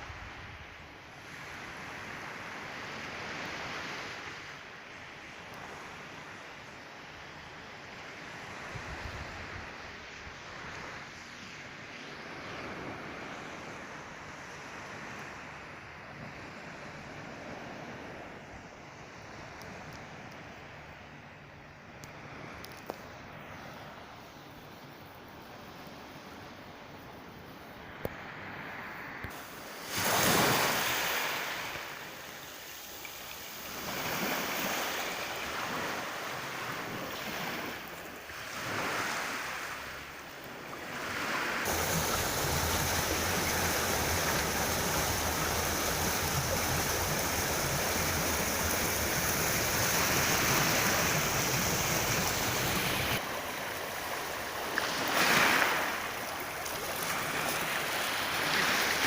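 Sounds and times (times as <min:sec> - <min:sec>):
sea surf washing on shore: 0:22.2 - 0:59.0
wind buffeting microphone: 0:41.6 - 0:53.3.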